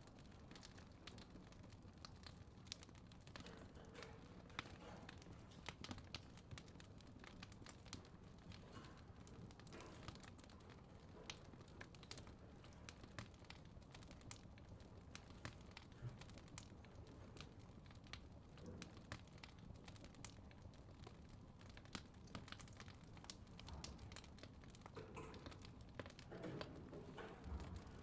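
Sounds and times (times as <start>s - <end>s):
fireplace crackling: 0.0s - 28.0s.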